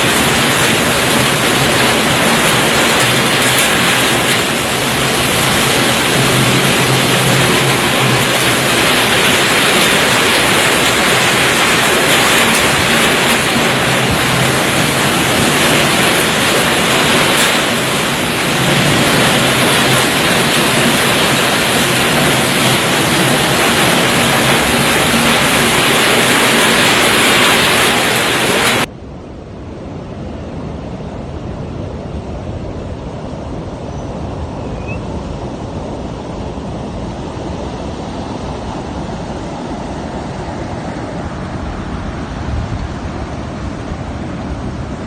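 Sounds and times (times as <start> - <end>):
heavy rain: 0.0 - 28.9
strong wind: 0.0 - 45.0.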